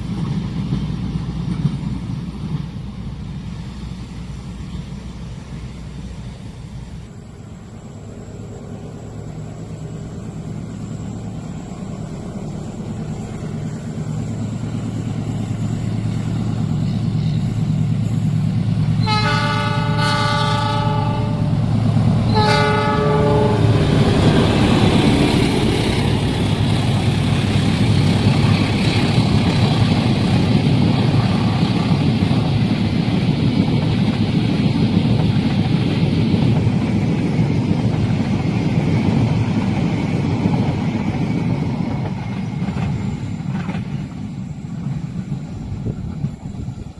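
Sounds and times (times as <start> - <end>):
locomotive engine drone: 0.0 - 46.9
train wheels rumbling on rails: 0.0 - 46.9
train horn blasts: 19.0 - 21.6, 22.2 - 24.2.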